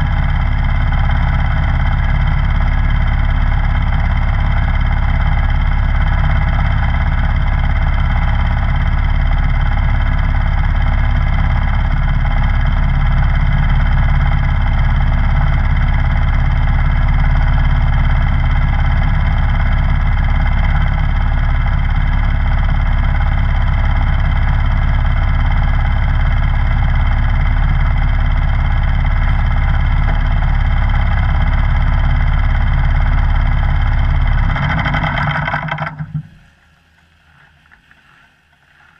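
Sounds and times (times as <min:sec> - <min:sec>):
snowblower engine running: 0:00.0 - 0:36.4.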